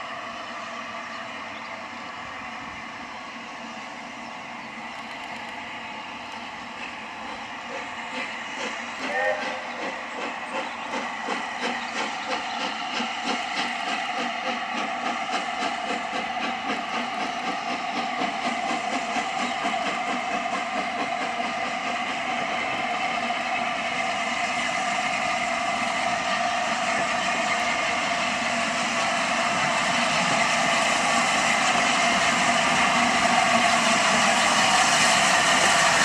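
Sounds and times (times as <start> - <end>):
steam train running: 0.0 - 36.0.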